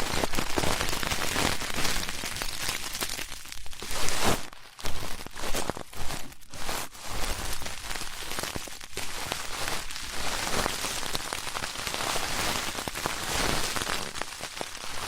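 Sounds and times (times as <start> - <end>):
ear pick scratching microphone: 3.7 - 9.4.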